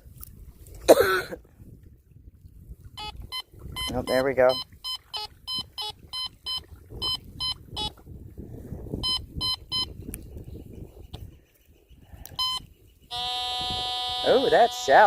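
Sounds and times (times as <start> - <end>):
metal detector beeping: 3.0 - 7.9, 9.0 - 9.9, 12.4 - 15.0.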